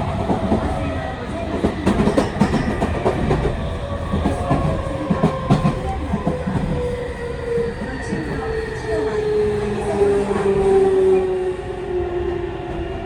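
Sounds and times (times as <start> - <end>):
steady train rumble: 0.0 - 13.0
train wheels clattering over rail joints: 1.5 - 6.8.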